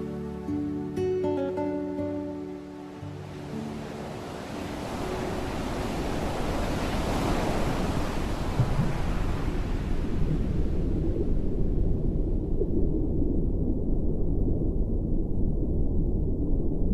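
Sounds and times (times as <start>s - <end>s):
ocean surf noise: 0.0s - 12.6s
low rumble: 8.6s - 16.9s.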